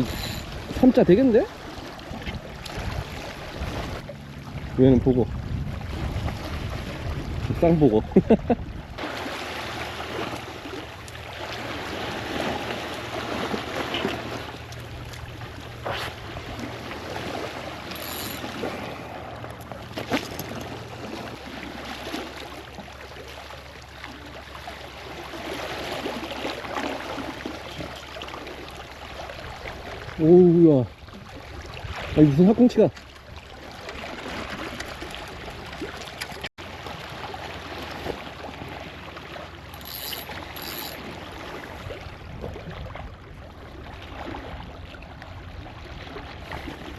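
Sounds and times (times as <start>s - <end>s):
seawater sloshing and lapping: 0.0s - 46.9s.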